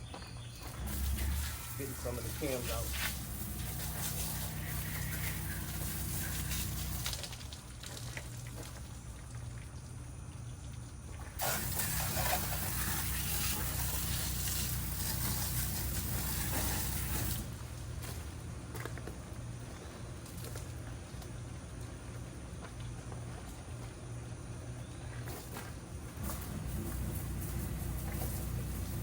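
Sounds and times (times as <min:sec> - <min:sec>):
steady low hum: 0:00.0 - 0:29.0
pressure washer spray hissing: 0:00.7 - 0:07.2, 0:11.4 - 0:17.7, 0:26.2 - 0:29.0.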